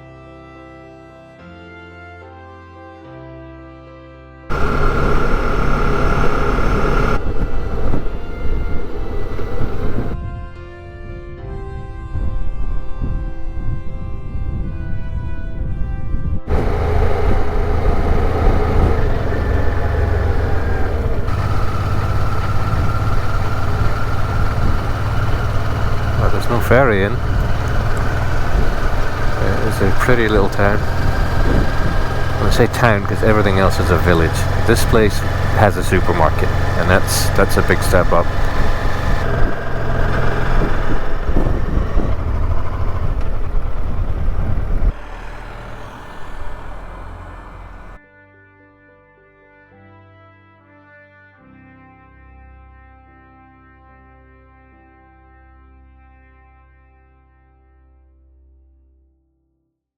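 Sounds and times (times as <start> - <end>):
low hum: 4.5 - 10.2, 16.5 - 48.0
motorcycle engine drone: 4.5 - 10.2, 16.5 - 48.0
road and wind noise: 4.5 - 48.0.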